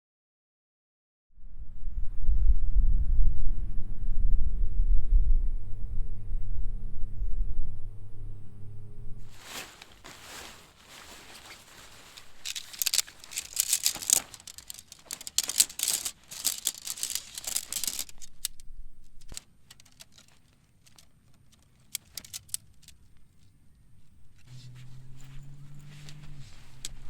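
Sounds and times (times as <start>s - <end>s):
crinkling and rustling: 9.2s - 23.6s, 24.4s - 27.0s
light clicks and taps: 9.4s - 18.6s, 19.2s - 23.5s.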